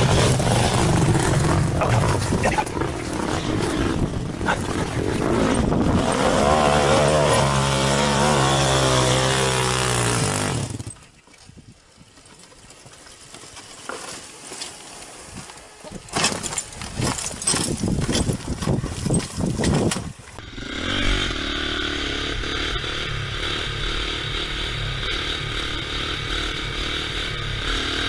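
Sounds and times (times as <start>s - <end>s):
off-road vehicle engine revving: 0.0s - 10.9s, 20.4s - 28.0s.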